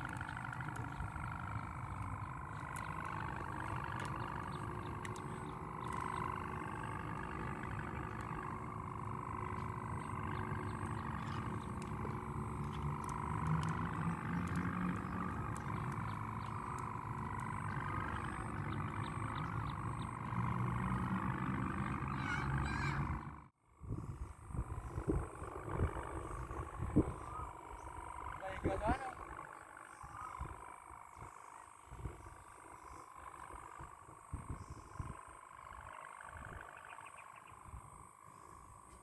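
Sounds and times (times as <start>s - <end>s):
kite hummer droning: 0.0s - 39.0s
wind rumble on microphone: 0.0s - 39.0s.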